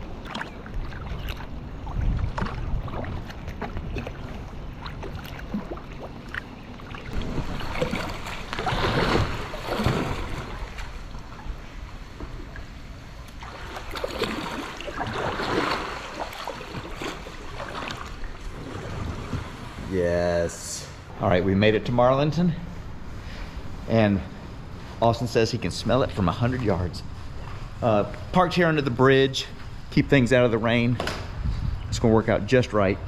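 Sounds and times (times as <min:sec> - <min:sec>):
wind rumble on microphone: 0:00.0 - 0:06.0, 0:30.0 - 0:33.0
paddle splashing in water: 0:00.0 - 0:19.9.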